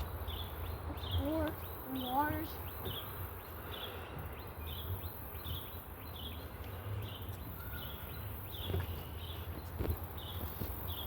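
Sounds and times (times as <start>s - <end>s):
faint footfalls or knocks: 8.6s - 11.0s.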